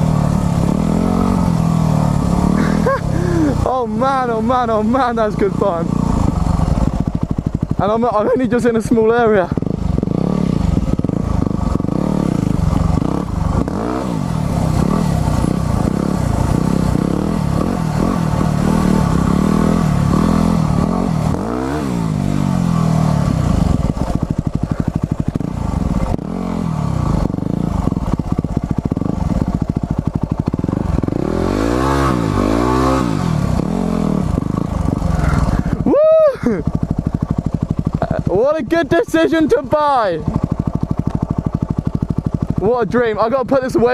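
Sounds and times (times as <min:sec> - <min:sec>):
motorcycle engine revving: 0:00.0 - 0:43.9
bike rattling over rough ground: 0:22.5 - 0:31.2.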